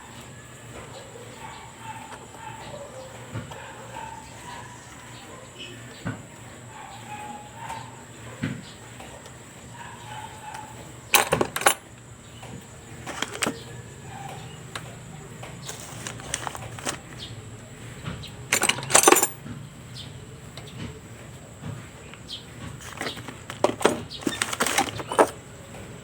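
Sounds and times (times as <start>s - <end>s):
metal tools clinking: 10.4s - 11.9s, 13.0s - 15.0s, 15.6s - 17.3s, 18.5s - 19.5s, 22.7s - 25.4s.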